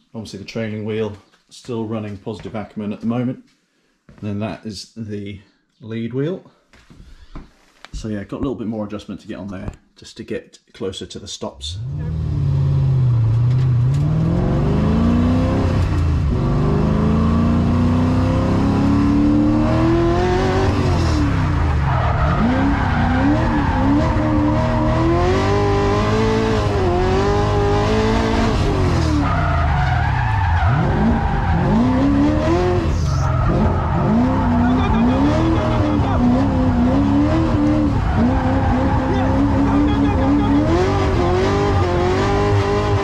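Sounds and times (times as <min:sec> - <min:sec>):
car engine revving: 0:11.7 - 0:43.0
tyres squealing: 0:21.0 - 0:26.1, 0:29.0 - 0:42.1.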